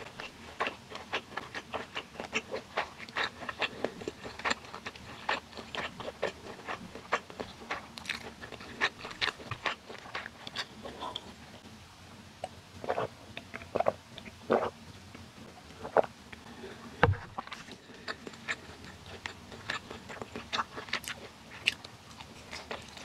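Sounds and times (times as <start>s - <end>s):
chewing mouth sounds: 0.0s - 11.4s, 17.4s - 23.0s.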